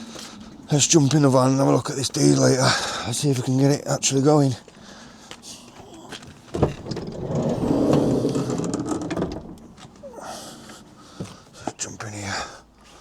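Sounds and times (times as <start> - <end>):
sliding door rolling rumble: 6.3 - 11.6
sliding door knock: 6.6 - 11.4.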